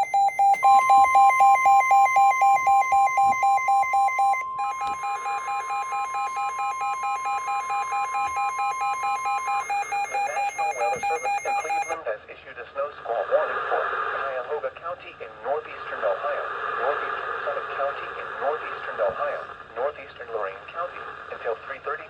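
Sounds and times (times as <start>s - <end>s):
rapid electronic beeping: 0.0s - 12.0s
steady warning tone: 0.0s - 12.0s.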